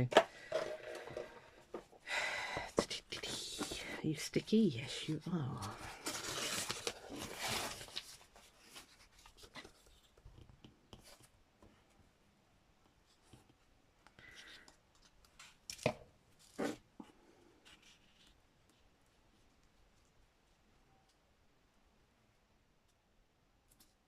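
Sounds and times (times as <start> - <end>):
paper rustling: 5.4 - 10.2.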